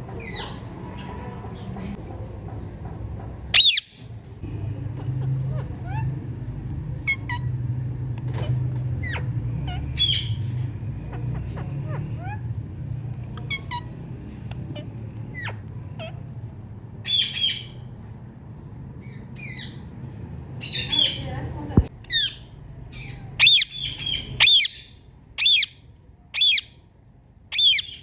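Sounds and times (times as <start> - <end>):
steady low hum: 0.0 - 27.5
parakeet harsh squawks: 3.5 - 4.0, 7.0 - 7.6, 8.3 - 12.6, 13.3 - 16.4, 22.1 - 25.8, 27.5 - 28.0
parakeet chirping: 3.5 - 4.1, 4.8 - 17.9, 22.0 - 26.8, 27.5 - 28.0.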